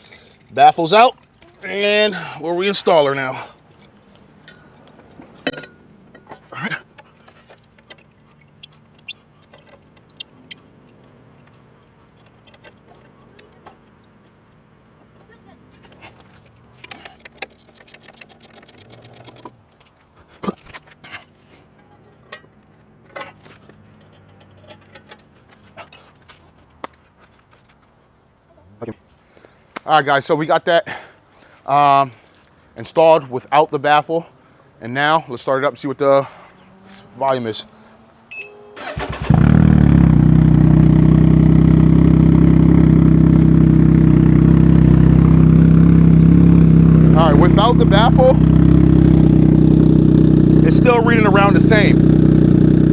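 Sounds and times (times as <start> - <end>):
metal clinks and knocks: 0.0 - 1.7, 3.4 - 14.3, 21.8 - 25.7
engine cranking and idling: 0.0 - 14.0, 15.9 - 20.0, 22.1 - 25.6, 36.1 - 52.9.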